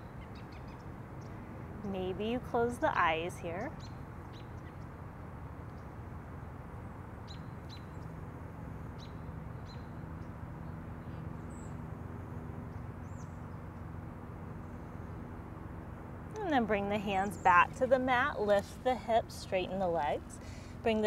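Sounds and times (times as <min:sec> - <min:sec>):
low background noise: 0:00.0 - 0:21.0
birds chirping: 0:16.4 - 0:21.0.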